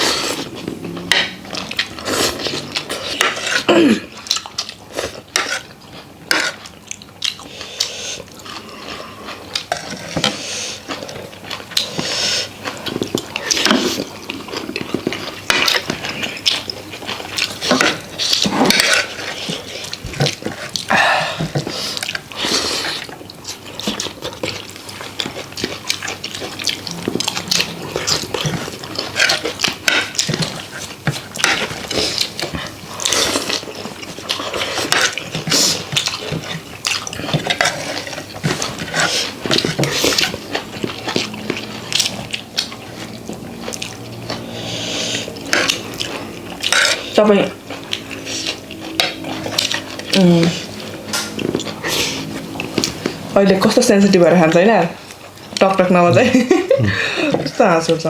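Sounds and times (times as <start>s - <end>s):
wet slurping and chewing: 0.0s - 56.2s.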